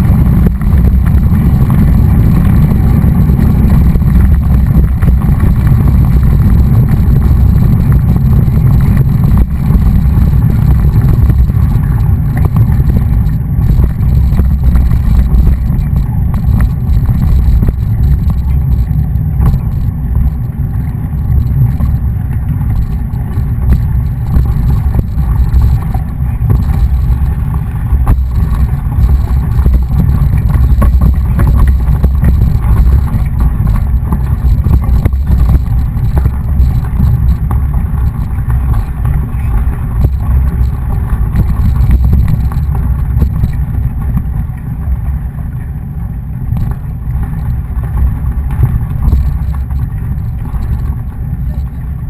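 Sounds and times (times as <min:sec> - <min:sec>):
tyre and road noise: 0:00.0 - 0:52.0
wind buffeting microphone: 0:00.0 - 0:52.0.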